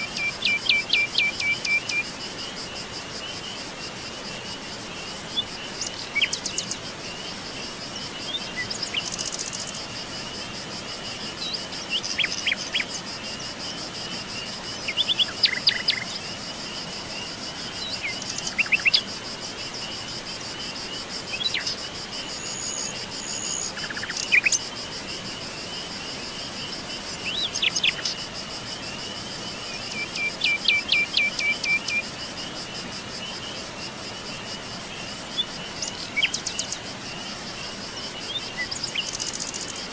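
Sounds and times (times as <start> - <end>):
insect trill: 0.0 - 39.9
songbirds chirping and trilling: 11.2 - 32.1.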